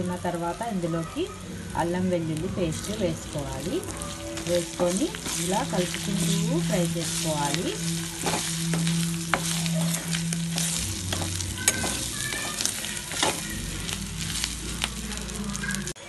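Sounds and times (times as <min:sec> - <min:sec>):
meat sizzling in hot oil: 0:00.0 - 0:16.0
steady low hum: 0:01.4 - 0:15.9
metal ladle scraping a pan: 0:02.8 - 0:14.9.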